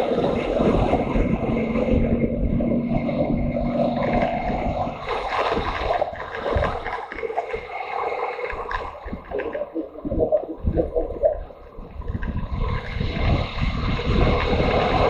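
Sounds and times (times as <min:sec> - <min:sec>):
motorcycle engine running: 0:00.0 - 0:06.3, 0:11.8 - 0:15.0
wind rumble on microphone: 0:00.0 - 0:15.0.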